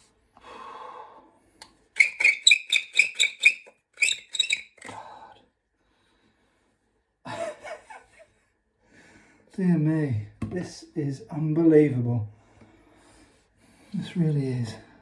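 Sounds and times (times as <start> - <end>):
pipe reamer squeaking: 2.0 - 4.9.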